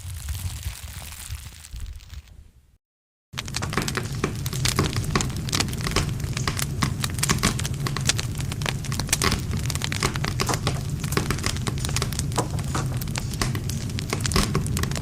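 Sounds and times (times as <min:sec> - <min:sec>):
campfire crackling and popping: 0:03.4 - 0:15.0
low rumble of flames: 0:03.4 - 0:15.0.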